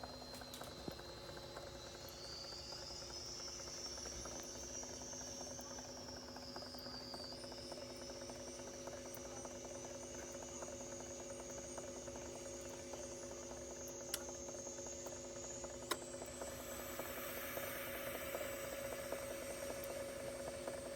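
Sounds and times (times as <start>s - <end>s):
electrical hum: 0.0s - 20.9s
faint high whine: 0.0s - 20.9s
light ticks: 14.1s - 14.3s.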